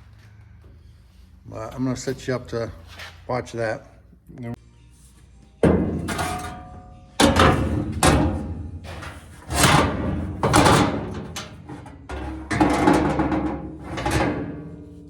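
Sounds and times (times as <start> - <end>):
sheet metal panels clanking: 5.6 - 15.0.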